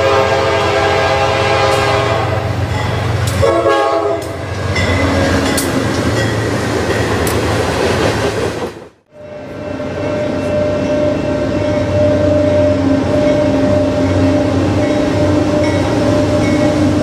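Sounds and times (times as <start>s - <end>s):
locomotive air horn chord: 0.0s - 2.6s, 3.3s - 4.4s
freight train rumbling past: 0.0s - 17.0s.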